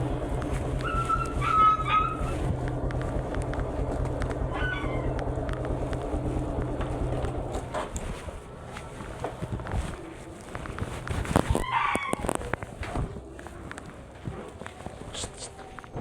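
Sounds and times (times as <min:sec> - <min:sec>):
vehicle engine humming: 0:00.0 - 0:16.0
high-pitched animal calls: 0:00.8 - 0:02.3, 0:04.5 - 0:05.2, 0:11.6 - 0:12.5.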